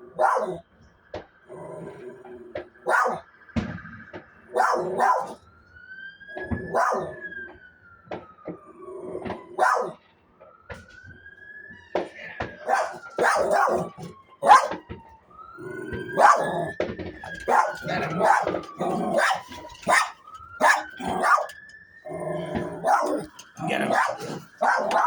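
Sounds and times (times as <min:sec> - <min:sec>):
dog barking: 0:00.0 - 0:00.6, 0:02.8 - 0:03.2, 0:04.5 - 0:05.4, 0:06.6 - 0:07.2, 0:09.6 - 0:10.0, 0:12.6 - 0:14.8, 0:16.0 - 0:25.0
siren wailing: 0:00.0 - 0:25.0.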